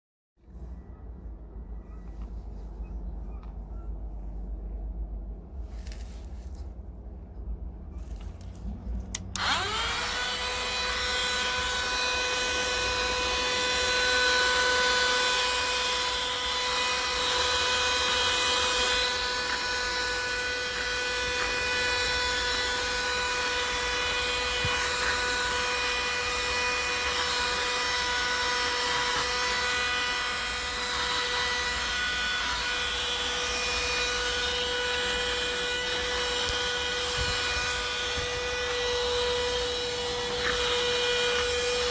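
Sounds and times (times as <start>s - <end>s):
handheld vacuum motor whine: 9.1s - 41.9s.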